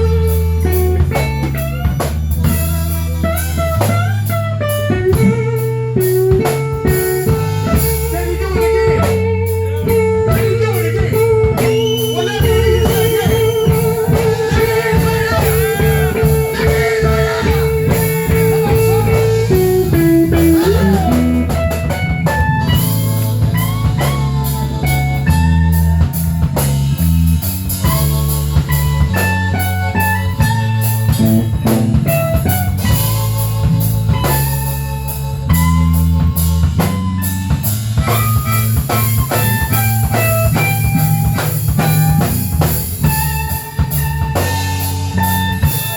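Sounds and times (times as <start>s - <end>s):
blues band playing: 0.0s - 45.9s
lead guitar wavering note: 11.2s - 25.0s.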